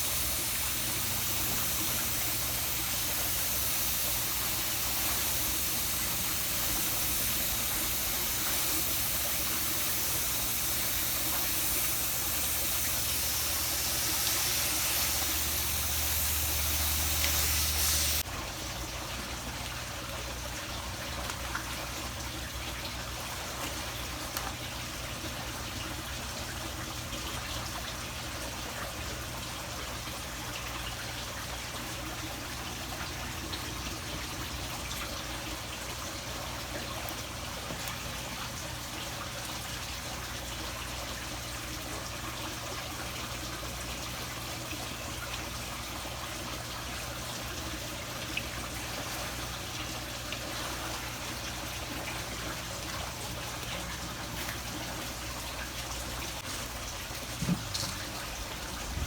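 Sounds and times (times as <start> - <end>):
water spray hissing: 0.0 - 18.3
water trickling: 0.0 - 18.3.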